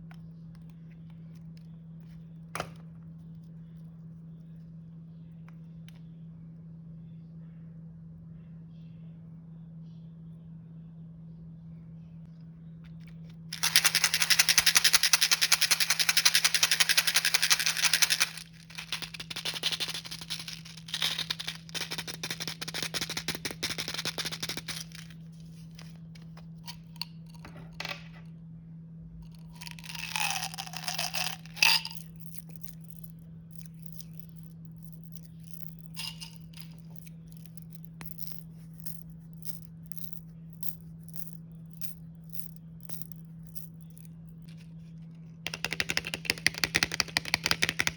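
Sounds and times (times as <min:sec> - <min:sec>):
steady low hum: 0:00.0 - 0:45.5
snack packaging crinkling: 0:13.6 - 0:27.4, 0:29.4 - 0:38.4.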